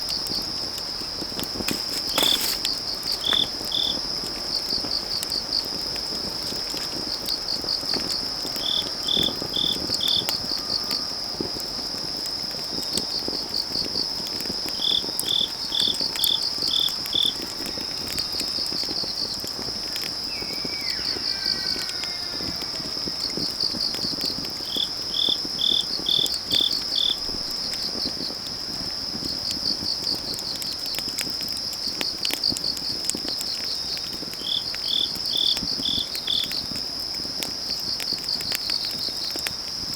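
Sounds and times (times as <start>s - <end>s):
crickets chirping: 0.0s - 39.9s
wood fire crackling and popping: 0.0s - 39.9s
distant elk call: 20.1s - 23.5s.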